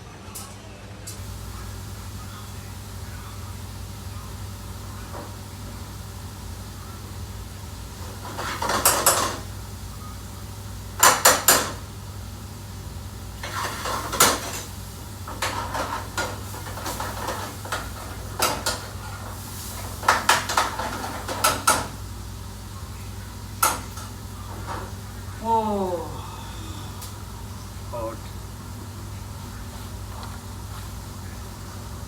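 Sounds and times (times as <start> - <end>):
steady low hum: 1.2 - 32.0
metal pots and pans clattering: 8.1 - 9.5, 11.0 - 11.8, 13.4 - 22.0.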